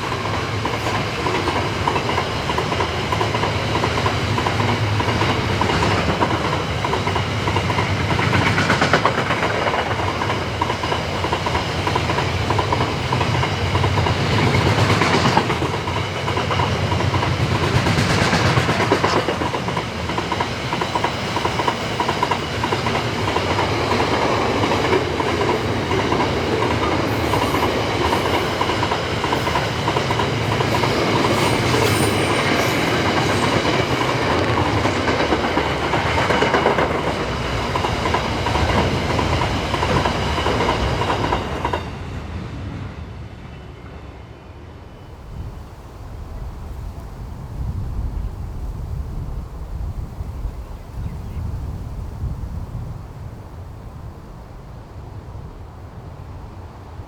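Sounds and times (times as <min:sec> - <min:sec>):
train wheels clacking over rail joints: 0:00.0 - 0:41.9.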